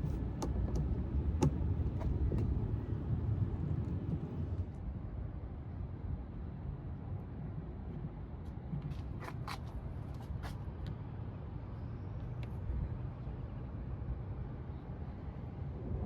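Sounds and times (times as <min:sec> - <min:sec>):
motor vehicle rumble: 0:00.0 - 0:04.8.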